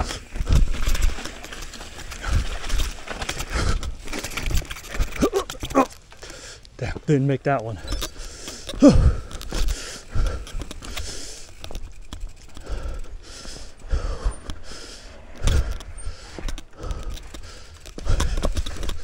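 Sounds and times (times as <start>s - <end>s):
bike rattling and clicking: 0.0s - 19.0s
person breathing heavily: 2.1s - 4.2s, 6.1s - 6.8s, 7.8s - 19.0s.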